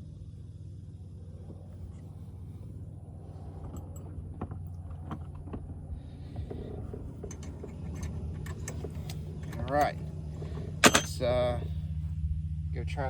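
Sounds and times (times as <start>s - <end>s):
steady low hum: 0.0s - 13.0s
hands handling wiring and tools: 6.4s - 11.2s.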